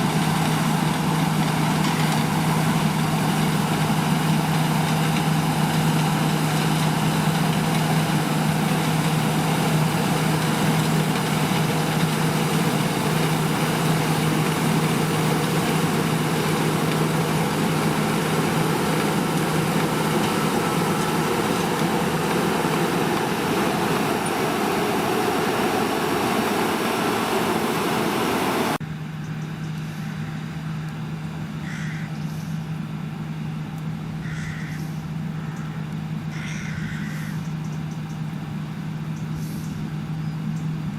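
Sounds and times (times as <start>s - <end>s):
diesel engine under load: 0.0s - 40.9s
faint bird calls: 31.6s - 32.7s, 34.2s - 38.3s.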